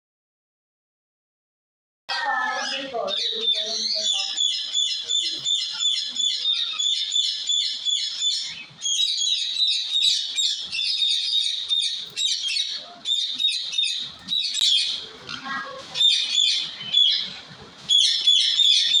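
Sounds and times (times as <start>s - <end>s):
small bird chirping: 2.2s - 17.3s.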